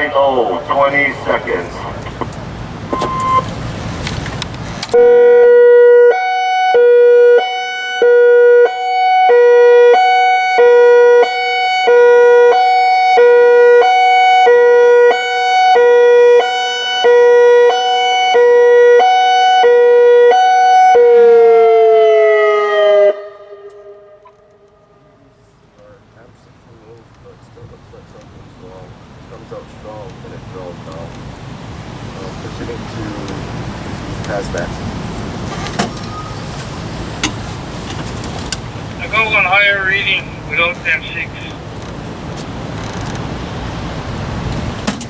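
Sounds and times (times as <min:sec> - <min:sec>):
high-low warning siren: 0:04.9 - 0:25.5.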